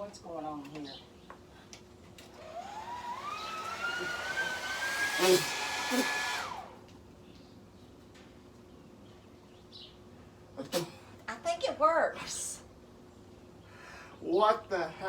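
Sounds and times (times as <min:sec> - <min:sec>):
blow dryer running: 0:02.4 - 0:06.9.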